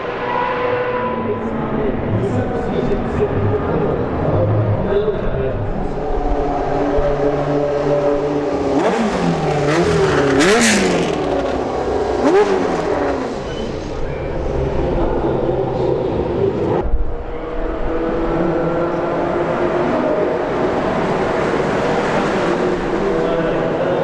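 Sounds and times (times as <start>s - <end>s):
racing engines running: 0.0s - 24.0s
engine throttle blips: 17.5s - 23.9s.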